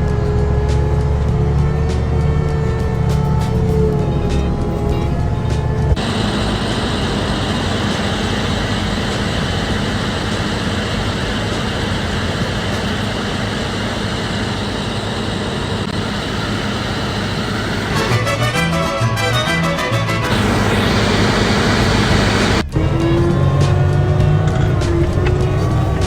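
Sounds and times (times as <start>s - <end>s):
music: 0.0s - 6.4s, 17.9s - 26.0s
vehicle running rumble: 0.0s - 18.8s, 19.5s - 26.0s.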